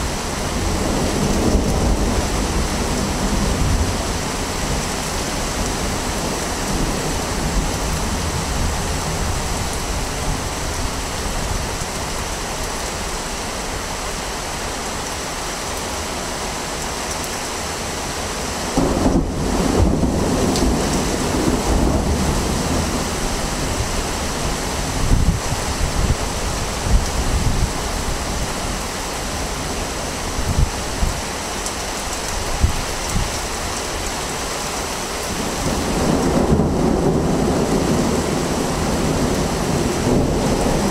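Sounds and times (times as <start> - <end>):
wind buffeting microphone: 18.8 - 31.3, 32.2 - 33.8.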